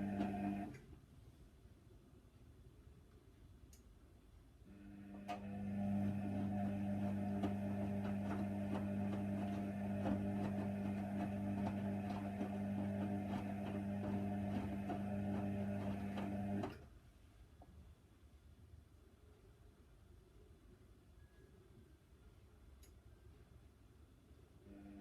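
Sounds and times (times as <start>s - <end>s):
washer dryer humming: 0.0s - 0.8s, 5.2s - 16.8s.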